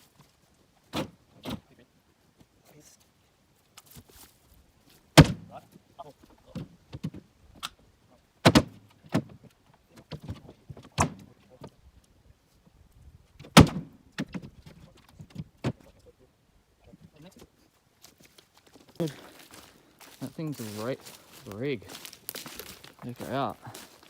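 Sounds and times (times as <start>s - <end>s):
firewood clattering: 17.4s - 24.0s.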